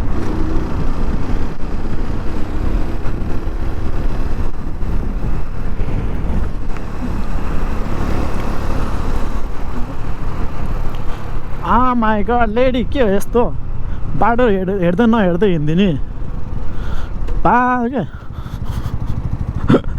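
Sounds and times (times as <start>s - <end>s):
wind rush over microphone: 0.0s - 11.6s
motorcycle engine running: 0.0s - 12.3s, 13.5s - 19.9s.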